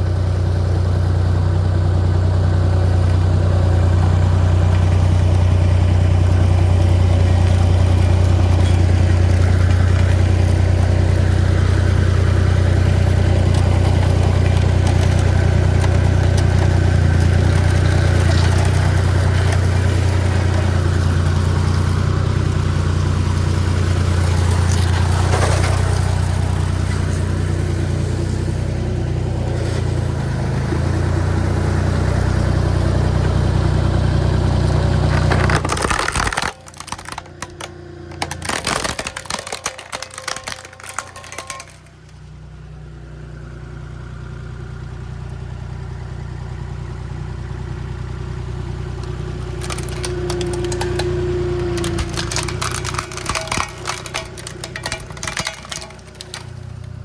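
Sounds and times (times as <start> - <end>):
road roller engine droning: 0.0 - 57.0
cracking and snapping: 4.6 - 27.8, 34.6 - 42.2, 49.0 - 57.0.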